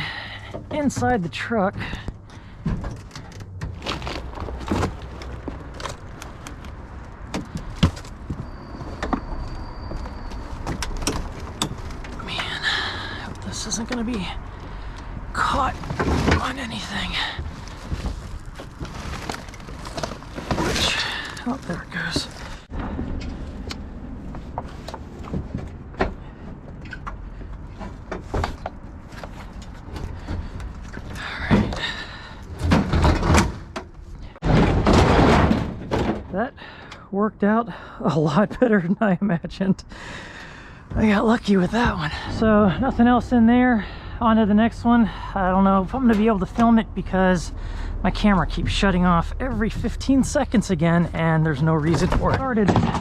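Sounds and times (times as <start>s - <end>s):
steady low rumble: 0.0s - 34.6s, 36.4s - 53.0s
scrap metal knocking and clunking: 0.4s - 37.0s, 51.8s - 53.0s
scrap metal knocks and rattles: 24.4s - 36.4s.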